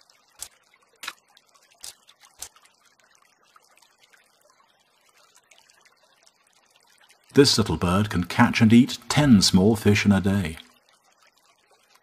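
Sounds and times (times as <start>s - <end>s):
fish knocked against a branch: 0.4s - 1.2s.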